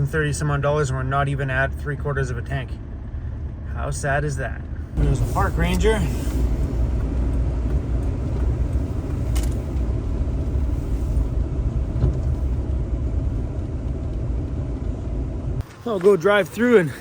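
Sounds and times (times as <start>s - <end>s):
van engine and road noise: 0.0s - 17.0s.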